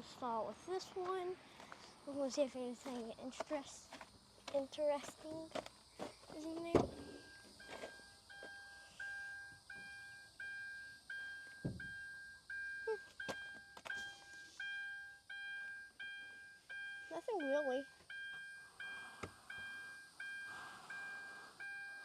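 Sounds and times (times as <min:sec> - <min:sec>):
car warning chime beeping: 0:06.9 - 0:22.0
low thump: 0:11.6 - 0:12.0.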